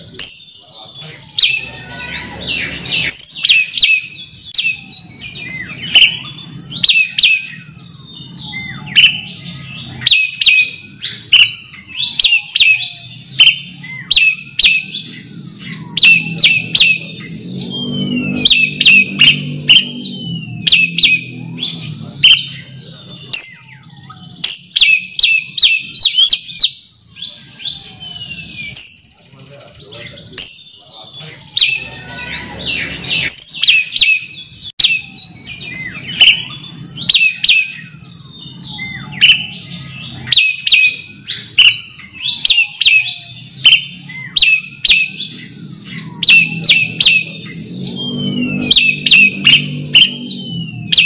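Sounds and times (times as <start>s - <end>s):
magpie-robin singing: 0.0s - 51.0s.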